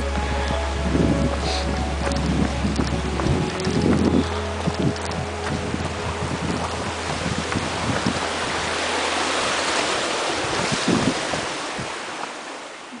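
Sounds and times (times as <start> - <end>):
low thumps: 0.0 - 9.6
running water rushing: 0.0 - 13.0.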